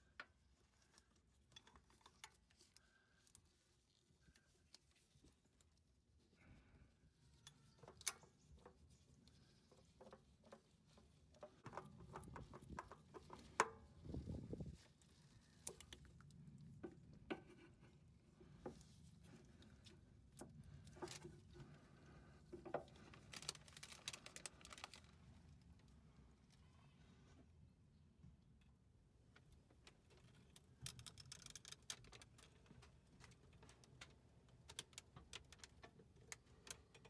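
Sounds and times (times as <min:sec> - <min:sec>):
tools and parts clicking: 0:30.2 - 0:32.6.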